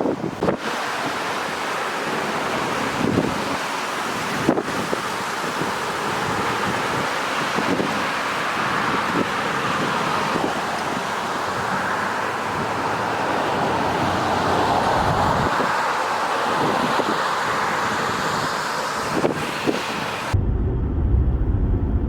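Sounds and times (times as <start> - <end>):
cars passing with tyre hiss: 0.5 - 20.4
low rumble: 20.3 - 22.0.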